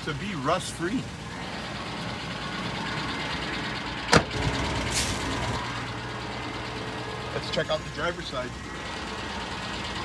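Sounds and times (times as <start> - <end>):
truck engine idling with ticking knock: 0.0 - 10.0
truck door slamming: 4.1 - 5.2.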